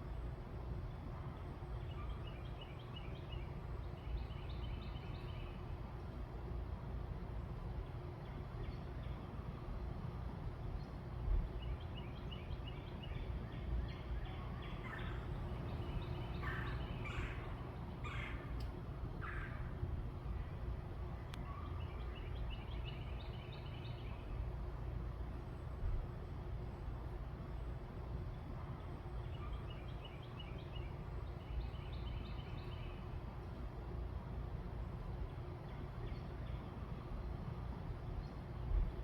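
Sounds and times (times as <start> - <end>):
low background rumble: 0.0 - 39.0
birds chirping: 11.7 - 19.6
loud bird calls: 13.9 - 18.6.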